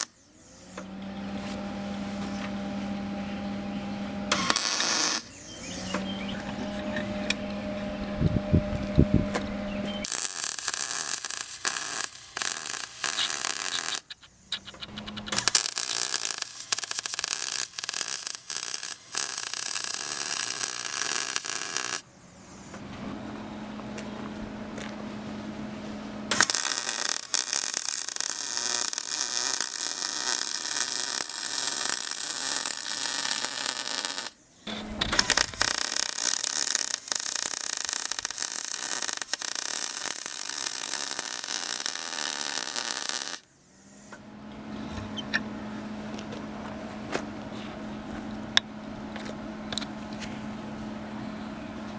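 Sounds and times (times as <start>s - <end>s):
arc welding crackle and hiss: 0.0s - 0.7s, 4.3s - 5.6s, 10.0s - 14.2s, 15.3s - 22.1s, 26.3s - 34.4s, 35.1s - 43.5s
steady low hum: 5.2s - 27.6s, 43.4s - 51.9s.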